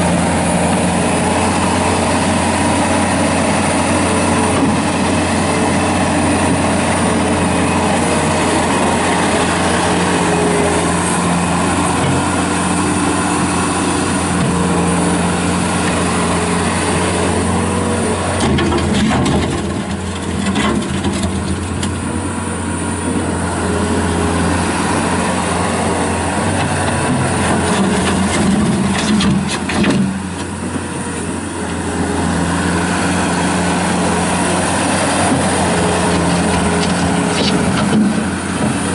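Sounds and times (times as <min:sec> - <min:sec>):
loader diesel engine running: 0:00.0 - 0:38.9.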